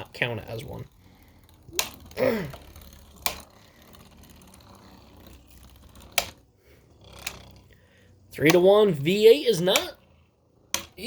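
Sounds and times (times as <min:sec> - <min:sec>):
plastic parts clicking: 0:01.2 - 0:04.6.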